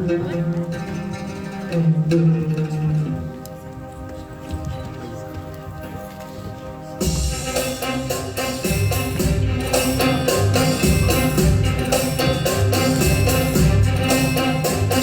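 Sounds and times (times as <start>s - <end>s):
live instrumental band music: 0.0s - 15.0s
drums keeping a low beat: 7.0s - 15.0s.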